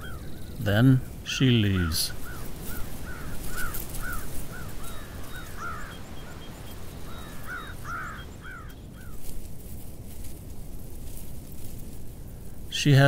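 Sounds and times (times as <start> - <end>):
bird calling: 0.0 - 9.6.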